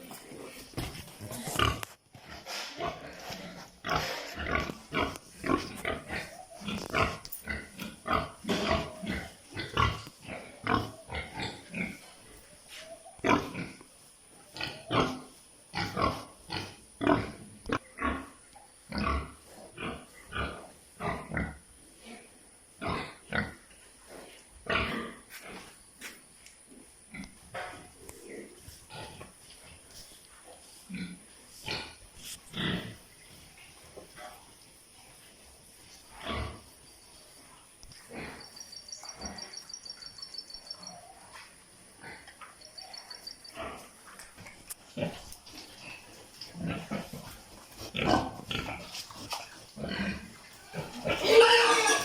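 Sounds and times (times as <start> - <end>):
pigs grunting and squealing: 0.8 - 13.9, 14.5 - 23.6, 38.0 - 44.2, 44.9 - 52.0.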